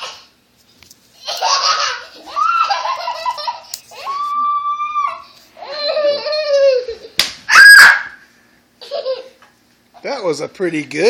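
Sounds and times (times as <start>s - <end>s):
child giggling: 1.2s - 7.2s, 8.8s - 9.5s
loud shriek: 7.5s - 8.2s.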